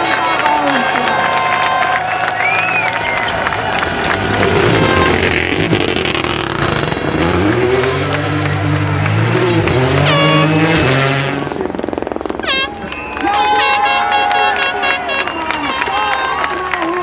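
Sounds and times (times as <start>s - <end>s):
rally car engine at full throttle: 0.0s - 17.0s.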